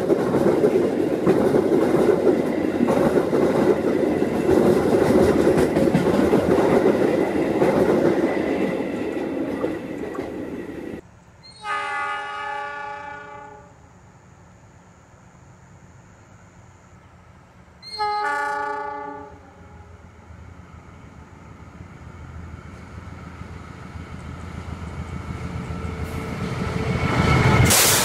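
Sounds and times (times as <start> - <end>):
train rumble with wheel clatter: 0.0 - 11.0, 18.7 - 28.0
locomotive horn blast: 11.5 - 13.8, 17.9 - 19.9.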